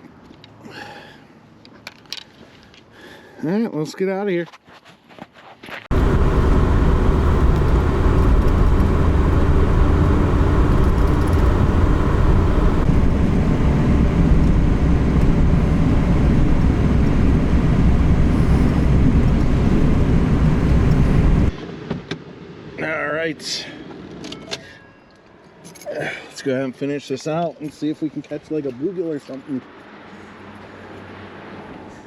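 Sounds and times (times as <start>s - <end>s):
car road and engine rumble: 5.9s - 21.6s.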